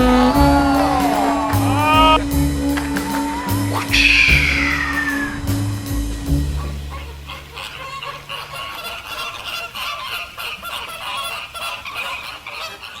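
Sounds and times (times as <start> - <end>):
low music: 0.0 - 7.8
flamingos honking: 0.0 - 13.0.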